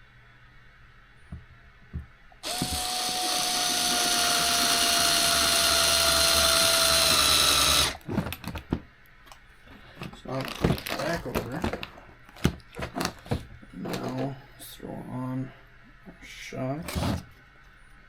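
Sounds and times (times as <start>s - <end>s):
electric screwdriver whining: 2.4s - 8.0s.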